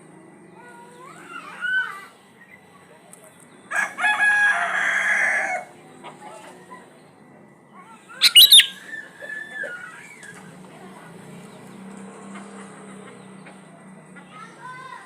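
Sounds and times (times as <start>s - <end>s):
bird calls: 8.1s - 9.8s.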